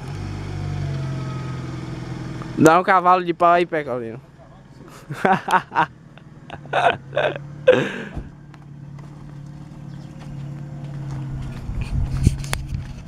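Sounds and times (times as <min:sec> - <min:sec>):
pickup engine idling: 0:03.5 - 0:13.0.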